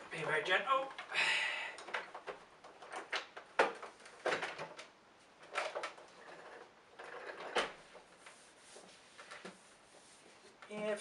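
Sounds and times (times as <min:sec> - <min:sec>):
plastic vacuum cleaner knocks and rattles: 0:01.9 - 0:04.9.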